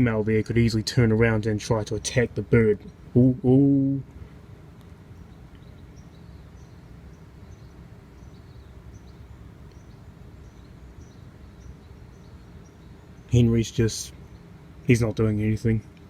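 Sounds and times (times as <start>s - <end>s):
small bird chirping: 4.7s - 16.0s.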